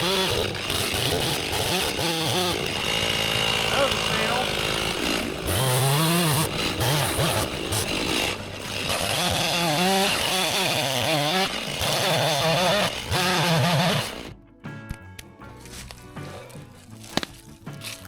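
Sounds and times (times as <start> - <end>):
chainsaw engine revving: 0.0 - 14.3.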